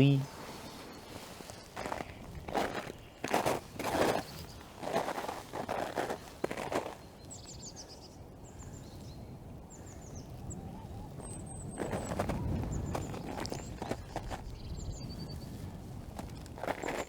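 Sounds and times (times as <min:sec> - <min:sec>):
footsteps: 0:00.0 - 0:07.0.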